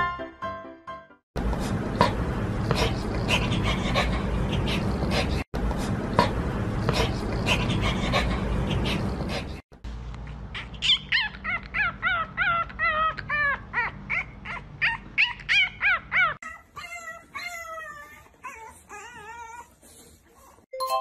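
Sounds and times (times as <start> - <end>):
puppy yipping howls: 10.8 - 19.6.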